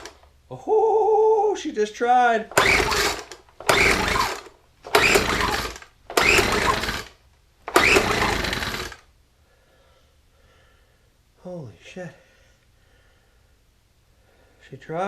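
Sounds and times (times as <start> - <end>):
pull-starter cranking small engine: 2.5 - 9.0.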